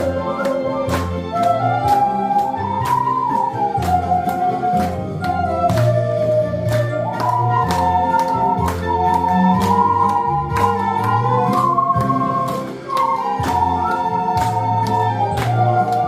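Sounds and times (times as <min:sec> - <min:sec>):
ocarinas playing melody: 0:00.0 - 0:16.0.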